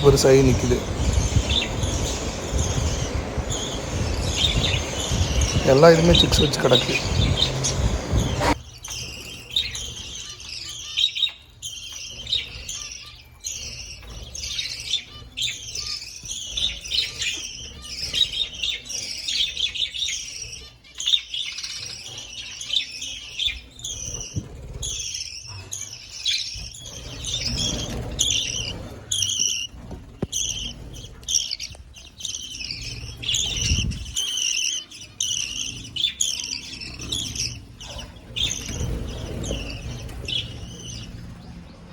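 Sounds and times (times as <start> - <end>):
birds chirping and chattering: 0.0 - 41.9.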